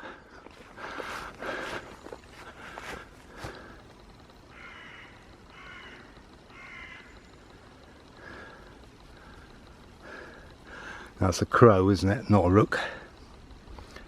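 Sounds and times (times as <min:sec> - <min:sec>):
crow cawing: 0:04.5 - 0:07.3.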